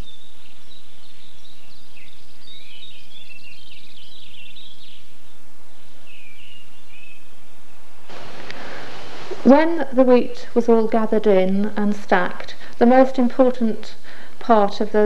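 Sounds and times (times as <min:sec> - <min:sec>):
small birds twittering: 0:00.0 - 0:09.6
low outdoor hum: 0:05.0 - 0:15.0.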